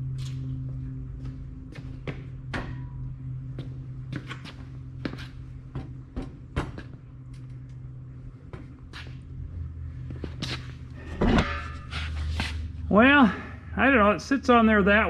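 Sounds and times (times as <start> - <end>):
steady low hum: 0.0 - 15.0
steel frame parts clanking: 11.0 - 12.4.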